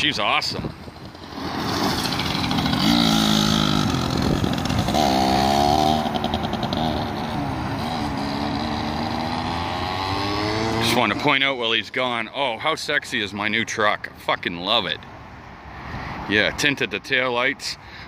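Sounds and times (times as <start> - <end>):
motorbike engine revving: 1.1 - 11.2.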